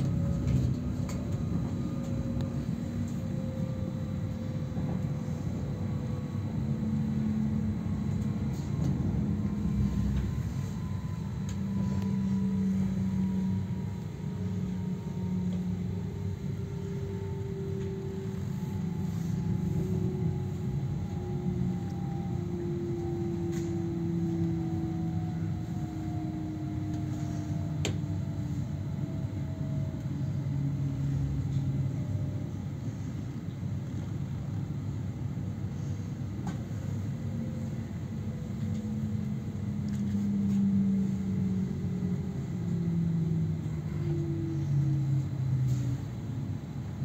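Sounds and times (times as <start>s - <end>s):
electric drive whine: 0.0s - 32.0s
train carriage rumble: 0.0s - 47.0s.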